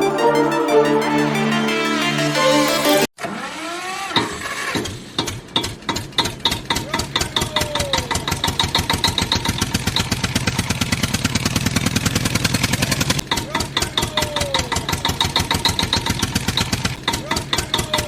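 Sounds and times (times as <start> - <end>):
tractor engine starting and idling: 8.2 - 18.0.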